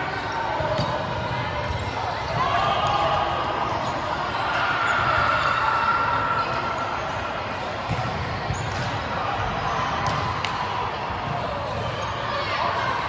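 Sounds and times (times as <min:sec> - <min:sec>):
players' voices: 0:00.0 - 0:13.0
volleyballs hit and bouncing: 0:07.7 - 0:12.0.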